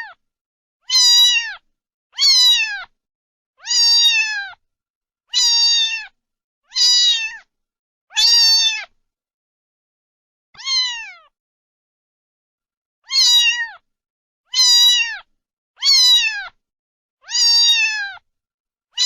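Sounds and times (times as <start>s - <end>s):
cat meowing: 0.0s - 0.2s, 0.8s - 3.0s, 3.6s - 4.6s, 5.3s - 7.5s, 8.1s - 9.0s, 10.6s - 11.4s, 13.0s - 13.8s, 14.5s - 16.6s, 17.2s - 18.2s.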